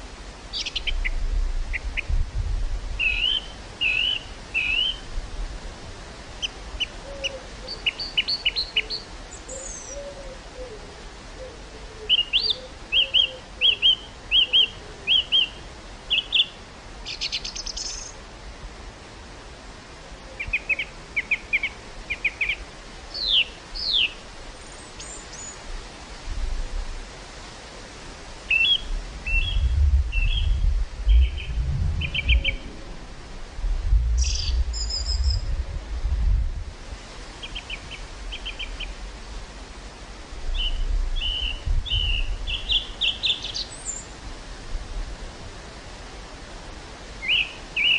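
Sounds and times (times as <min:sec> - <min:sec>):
wind rumbling on microphone: 0:00.0 - 0:07.9, 0:25.6 - 0:47.4
outdoor hiss: 0:00.0 - 0:47.9
small birds chirping: 0:00.5 - 0:02.1, 0:03.0 - 0:05.0, 0:06.4 - 0:10.1, 0:12.1 - 0:18.2, 0:20.3 - 0:25.6, 0:28.5 - 0:32.7, 0:34.2 - 0:35.5, 0:37.4 - 0:39.0, 0:40.5 - 0:44.1, 0:47.2 - 0:47.9.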